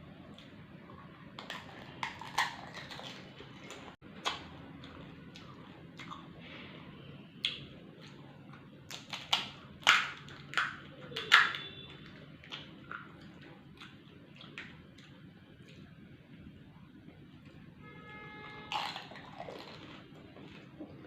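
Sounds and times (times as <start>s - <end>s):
person chewing crunchy snack: 0.3s - 6.4s, 7.4s - 15.9s, 18.7s - 21.0s.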